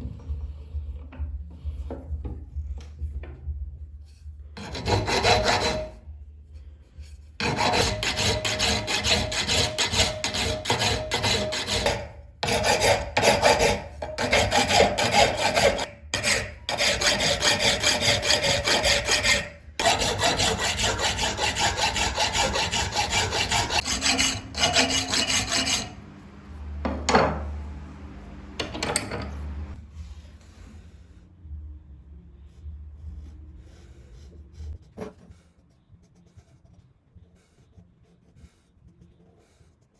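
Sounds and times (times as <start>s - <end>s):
steel being rasped by hand: 4.6s - 6.0s, 7.4s - 26.0s.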